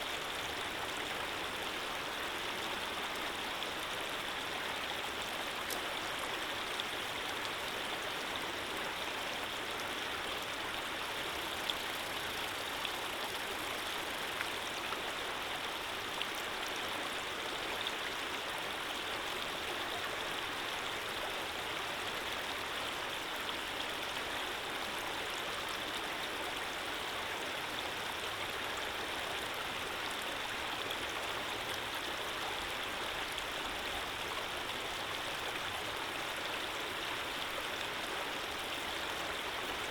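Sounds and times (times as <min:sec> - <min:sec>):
faint ticks and splashes: 0:09.9 - 0:16.7.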